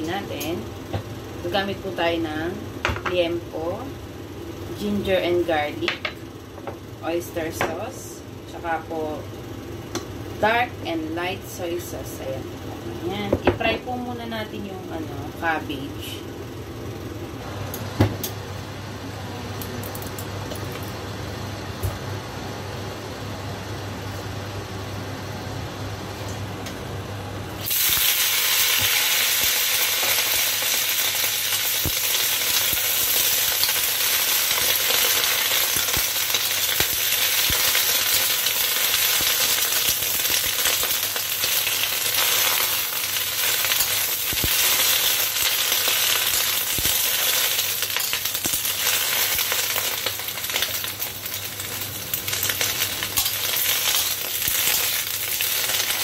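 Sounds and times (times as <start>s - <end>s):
cabbage sizzling in hot oil: 27.6s - 56.0s.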